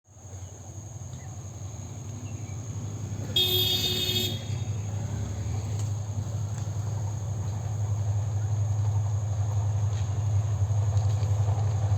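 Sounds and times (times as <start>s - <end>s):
diesel locomotive engine rumble: 0.1s - 11.9s
short train horn blast: 3.4s - 4.8s.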